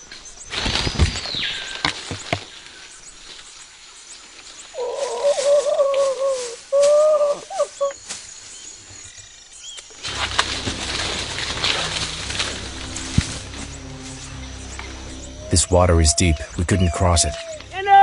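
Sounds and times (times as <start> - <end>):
monkey hooting: 4.8 - 8.0, 15.2 - 18.0
background music: 10.1 - 18.0.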